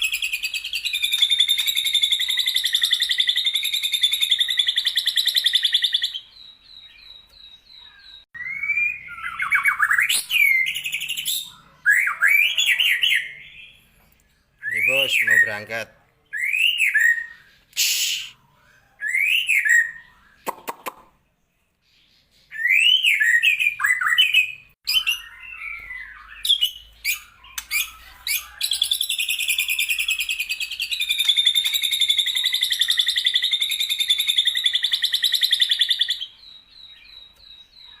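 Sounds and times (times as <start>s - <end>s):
bird whistling and chirping: 0.0s - 14.0s, 14.6s - 15.7s, 16.3s - 20.9s, 22.0s - 38.0s
rapid buzzy bird trill: 22.8s - 36.4s.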